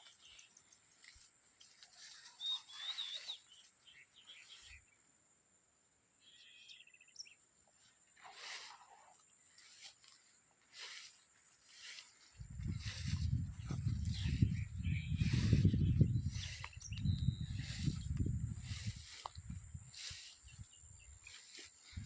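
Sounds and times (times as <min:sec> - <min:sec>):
faint bird calls: 0:01.9 - 0:05.0.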